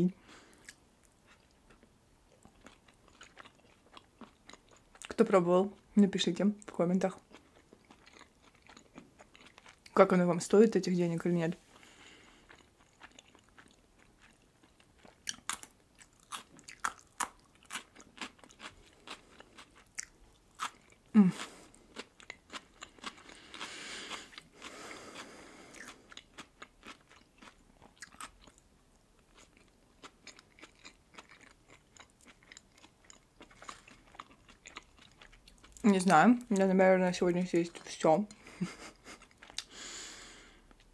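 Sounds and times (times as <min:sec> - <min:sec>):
person humming: 0:21.2 - 0:21.5.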